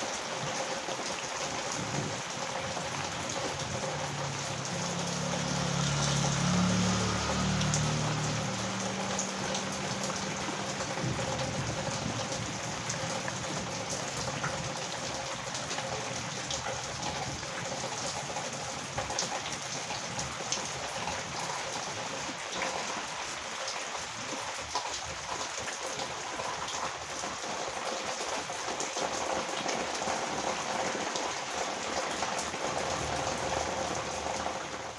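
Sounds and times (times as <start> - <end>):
heavy rain on road: 0.0 - 34.9
passing vehicle engine: 2.9 - 14.3.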